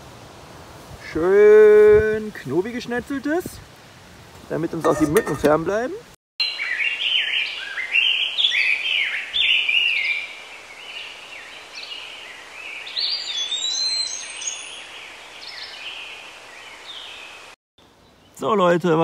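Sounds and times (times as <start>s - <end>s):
songbirds singing: 6.4s - 18.8s.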